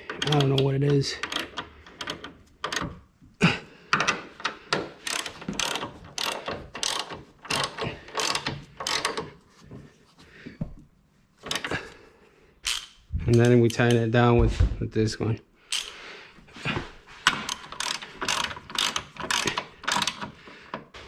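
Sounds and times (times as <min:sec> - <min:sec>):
ratchet wrench clicking: 0:00.1 - 0:02.9, 0:04.4 - 0:09.3, 0:12.6 - 0:13.9, 0:15.7 - 0:16.0, 0:17.3 - 0:20.4.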